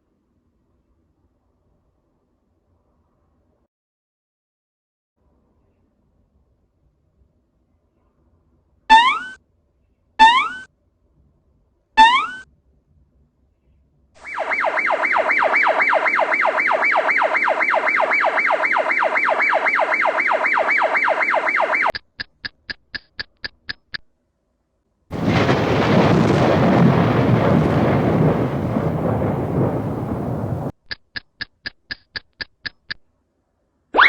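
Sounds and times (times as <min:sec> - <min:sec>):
fast warbling alarm tone: 0:08.9 - 0:09.4, 0:10.2 - 0:10.7, 0:12.0 - 0:12.4, 0:14.2 - 0:21.9
short beeps: 0:08.9 - 0:09.4, 0:10.2 - 0:10.7, 0:12.0 - 0:12.4.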